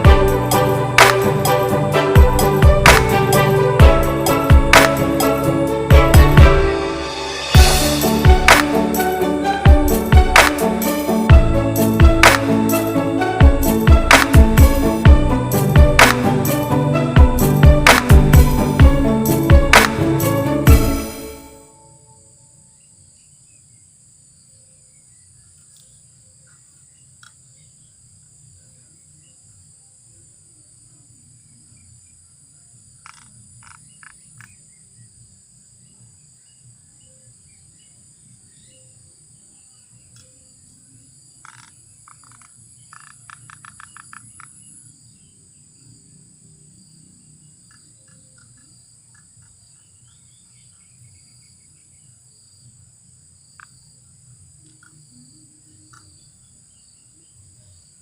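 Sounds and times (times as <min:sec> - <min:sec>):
rapid repeated animal calls: 0:33.0 - 0:34.6, 0:41.4 - 0:44.6, 0:47.6 - 0:49.8.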